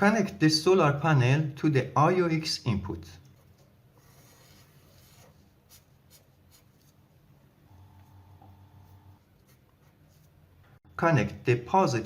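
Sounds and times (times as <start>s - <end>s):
faint hum: 7.1s - 9.9s.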